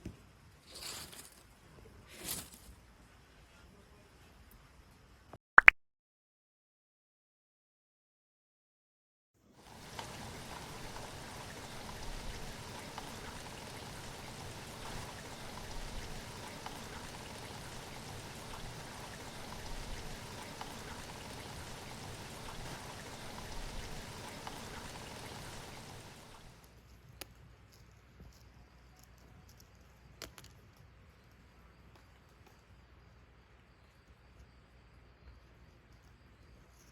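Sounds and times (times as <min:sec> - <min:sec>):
falling water hiss: 0:09.4 - 0:26.7
water dripping: 0:09.6 - 0:26.7.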